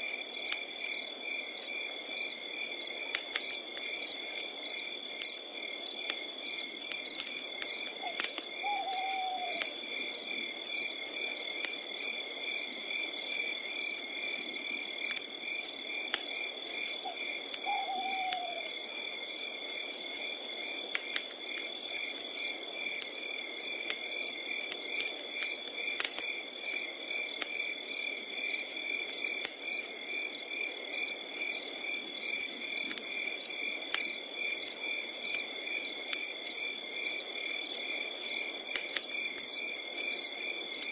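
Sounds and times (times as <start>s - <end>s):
campfire crackling and popping: 0.0s - 40.9s
crickets chirping: 0.0s - 40.9s
owl hooting: 8.0s - 9.7s, 17.0s - 18.6s.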